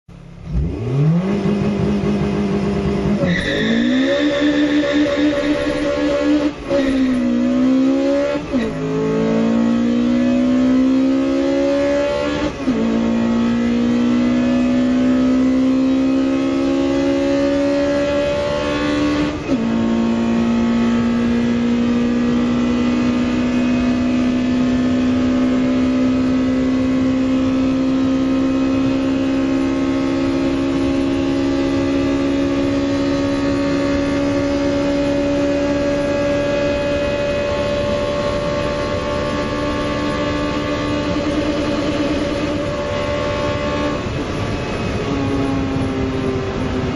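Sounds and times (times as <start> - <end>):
car engine revving at full throttle: 0.1 - 46.9.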